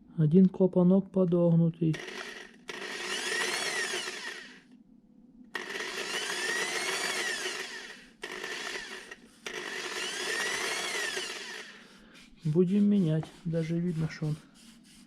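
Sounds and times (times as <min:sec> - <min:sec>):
power drill grinding valve: 0:01.9 - 0:04.6, 0:05.6 - 0:12.0.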